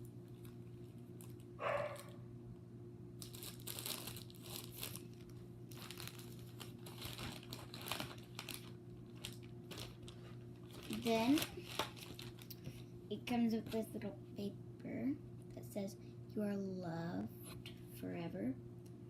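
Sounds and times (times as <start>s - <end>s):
low steady hum: 0.0s - 19.0s
packaging crinkling and rustling: 0.2s - 2.1s, 3.2s - 12.9s.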